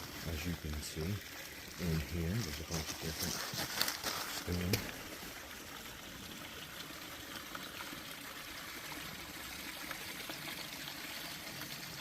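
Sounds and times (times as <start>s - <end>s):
creek water trickling over stones: 0.0s - 12.0s.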